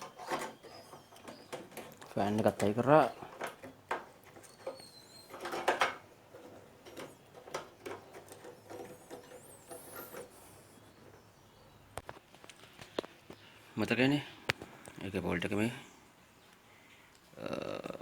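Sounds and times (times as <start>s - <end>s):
small parts clicking and scraping: 0.0s - 11.2s.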